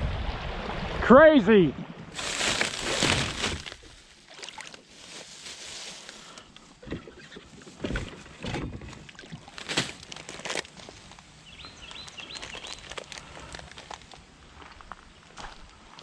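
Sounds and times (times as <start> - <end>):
creek water rushing: 0.0 - 6.3.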